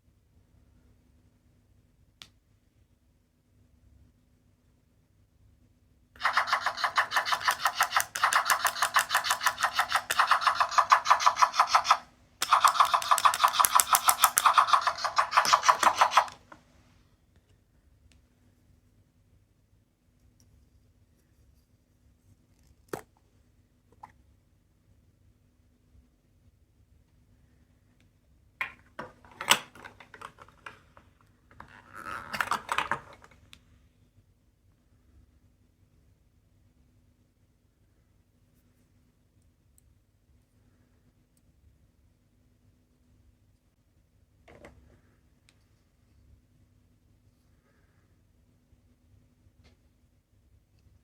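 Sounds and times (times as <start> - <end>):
electronic pulsing from toy speaker: 6.2 - 16.4.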